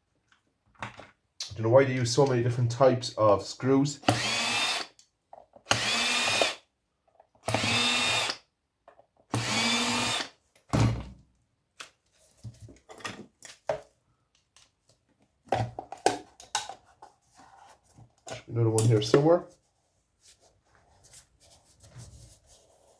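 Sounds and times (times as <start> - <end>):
cordless drill running: 4.0 - 4.9, 5.7 - 6.6, 7.4 - 8.4, 9.3 - 10.4.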